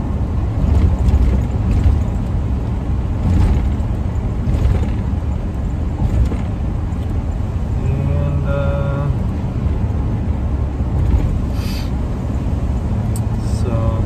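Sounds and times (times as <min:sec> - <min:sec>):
road and engine rumble: 0:00.0 - 0:14.0.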